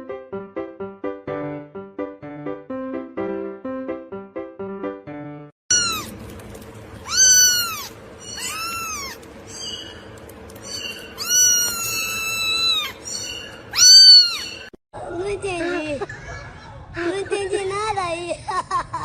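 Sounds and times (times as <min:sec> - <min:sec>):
cat meowing: 0:05.7 - 0:06.2, 0:07.0 - 0:09.9, 0:10.7 - 0:14.7.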